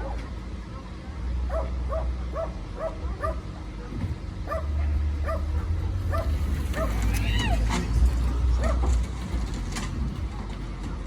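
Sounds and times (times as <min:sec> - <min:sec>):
steady low rumble: 0:00.0 - 0:11.0
dog yipping: 0:01.5 - 0:03.5, 0:04.5 - 0:07.9.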